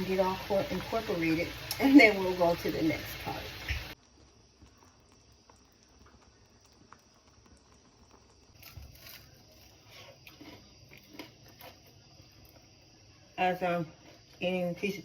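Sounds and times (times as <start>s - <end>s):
faint irregular clicks and crackles: 3.6s - 12.9s.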